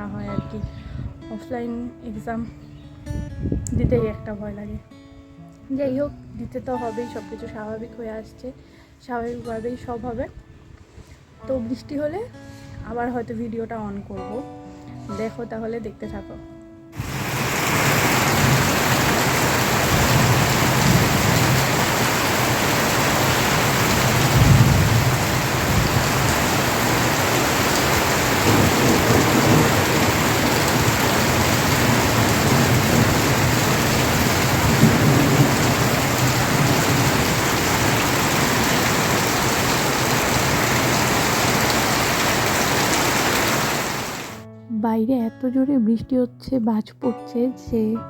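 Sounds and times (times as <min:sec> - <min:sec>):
heavy rain pouring: 0:17.0 - 0:44.4
thunder rumbling: 0:17.0 - 0:44.4.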